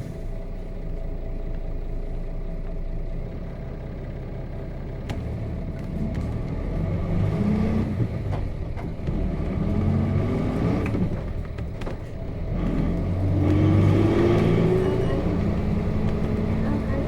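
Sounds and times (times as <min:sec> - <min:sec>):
diesel bus engine under load: 0:00.0 - 0:17.0.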